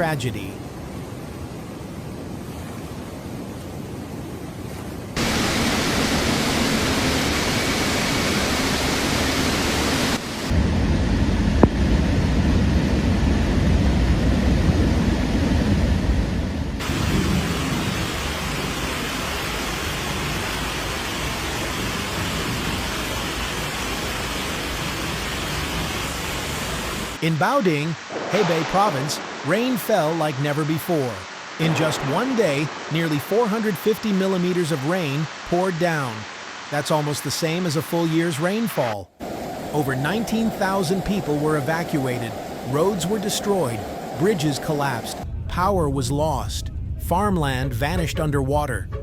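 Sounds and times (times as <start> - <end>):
rushing water: 0.0 - 10.6, 16.8 - 45.2
rain: 0.0 - 45.3
deep rumble: 5.2 - 23.8, 24.8 - 33.4, 45.2 - 49.0.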